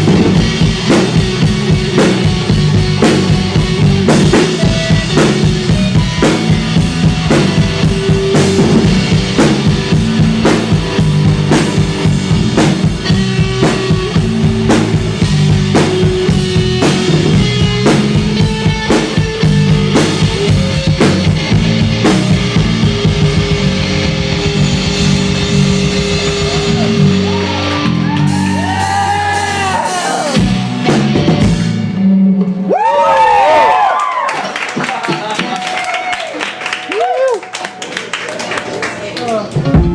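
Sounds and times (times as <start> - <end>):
electric guitar: 0.0 - 34.5, 39.4 - 39.9
bass: 0.0 - 38.0, 39.2 - 39.9
drum kit: 0.0 - 38.0, 39.5 - 39.9.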